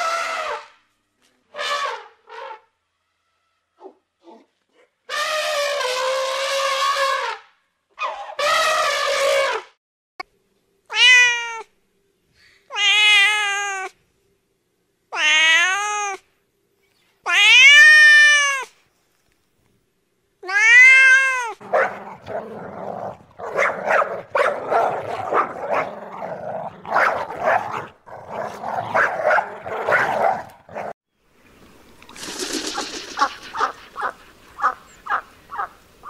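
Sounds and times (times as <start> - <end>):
cat meowing: 10.9 - 11.7, 12.7 - 13.9, 15.1 - 16.2, 17.3 - 18.7, 20.4 - 21.6
rough irregular noise: 31.8 - 34.7.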